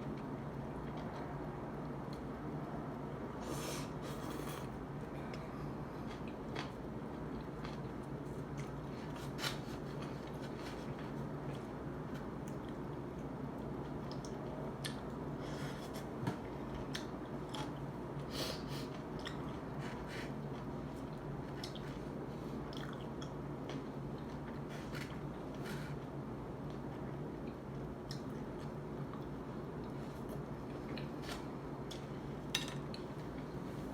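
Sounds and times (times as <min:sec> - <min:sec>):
steady low hum: 0:00.0 - 0:33.9
person chewing: 0:21.1 - 0:25.7.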